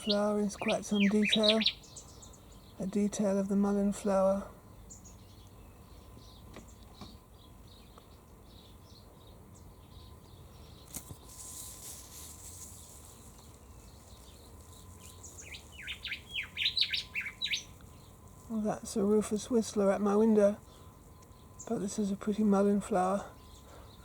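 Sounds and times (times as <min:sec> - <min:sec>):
faint bird chirps: 0:00.0 - 0:03.4, 0:04.6 - 0:24.0
bird whistling descending notes: 0:15.3 - 0:17.7.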